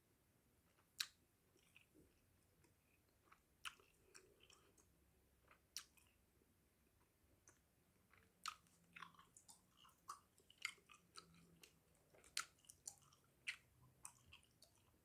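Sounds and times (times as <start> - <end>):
gum chewing mouth smacks: 3.3 - 4.9, 8.2 - 14.9.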